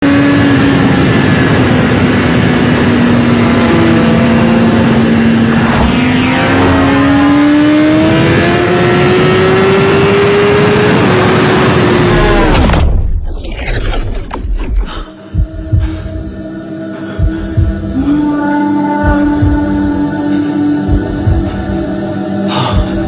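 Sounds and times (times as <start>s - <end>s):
vehicle engine accelerating: 0.0s - 12.8s
road and wind noise: 0.0s - 13.0s.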